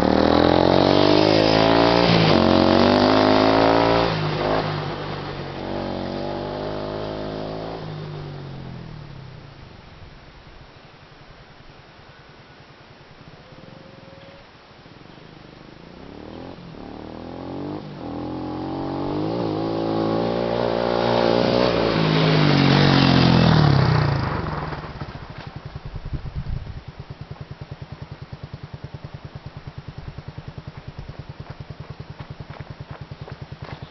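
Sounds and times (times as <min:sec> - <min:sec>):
motorcycle engine revving past: 0:00.0 - 0:09.6, 0:15.3 - 0:33.9.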